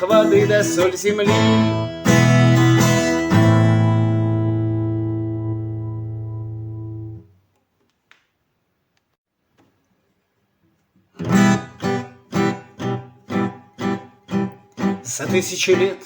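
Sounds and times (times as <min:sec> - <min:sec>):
guitar strumming chords: 0:00.0 - 0:07.2, 0:11.2 - 0:16.0.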